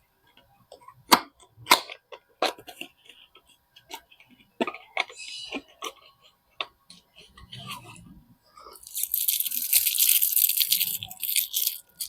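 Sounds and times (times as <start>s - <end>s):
packaging wrapper crackling: 8.8s - 12.0s.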